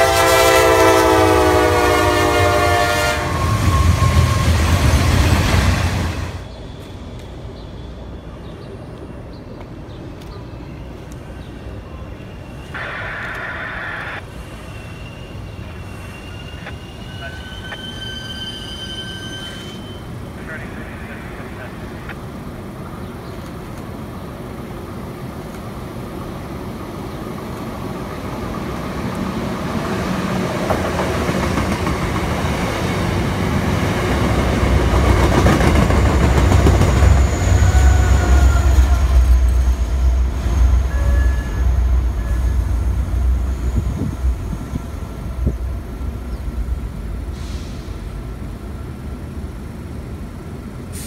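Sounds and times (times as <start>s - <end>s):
diesel locomotive engine drone: 0.0s - 51.0s
train coaches rumbling on rails: 0.0s - 51.0s
faint high whine: 11.6s - 22.2s.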